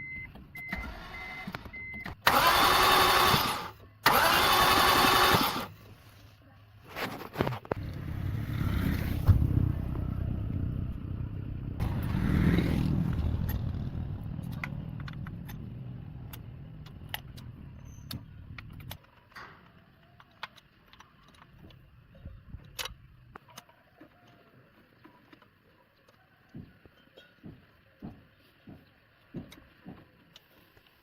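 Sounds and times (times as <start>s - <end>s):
vehicle engine running: 7.6s - 19.0s.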